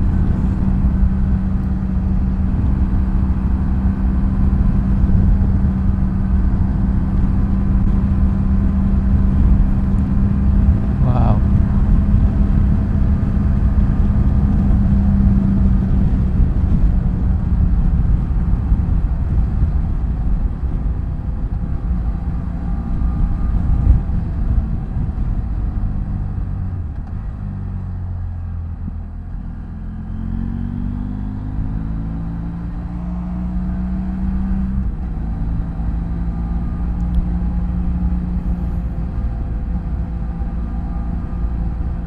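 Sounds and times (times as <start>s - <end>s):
motorcycle engine running: 0.0s - 42.0s
wind and road noise: 0.0s - 42.0s.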